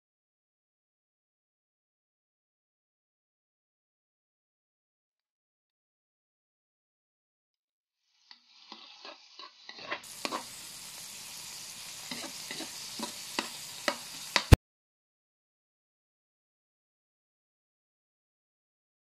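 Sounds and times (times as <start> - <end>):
meat and onions frying: 8.0 - 14.6
spatula scraping a wok: 8.0 - 14.6.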